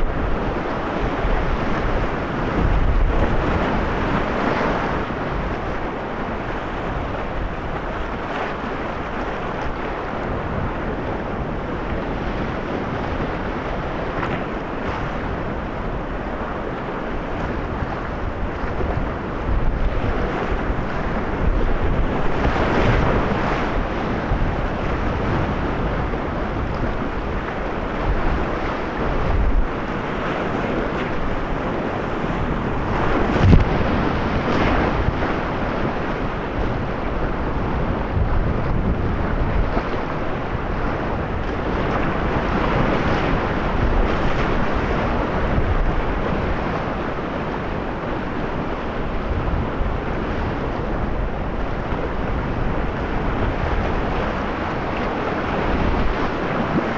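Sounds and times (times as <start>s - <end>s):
wind buffeting microphone: 0.0s - 56.9s
whitewater rapids rushing: 19.2s - 56.9s.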